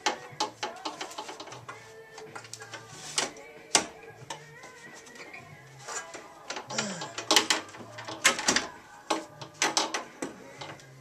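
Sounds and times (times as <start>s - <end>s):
metal parts clinking and knocking: 6.0s - 10.8s.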